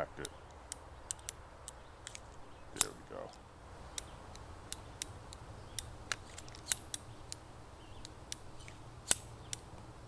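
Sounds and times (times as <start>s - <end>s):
revolver metallic clicks: 0.2s - 7.4s.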